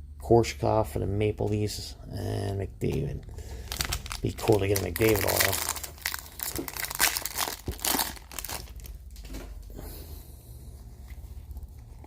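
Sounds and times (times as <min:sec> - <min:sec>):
low steady hum: 0:00.0 - 0:12.0
foil wrapper crinkling and tearing: 0:03.4 - 0:09.2.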